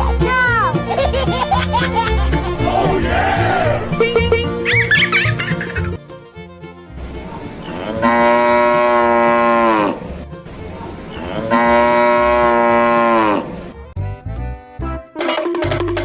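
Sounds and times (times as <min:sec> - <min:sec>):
cow mooing: 0:07.6 - 0:10.2, 0:11.1 - 0:13.7.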